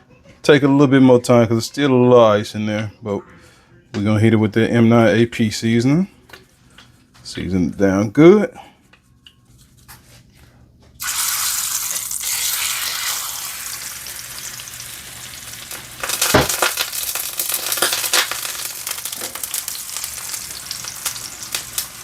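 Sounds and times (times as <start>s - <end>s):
chicken sizzling in hot oil: 11.0s - 22.0s.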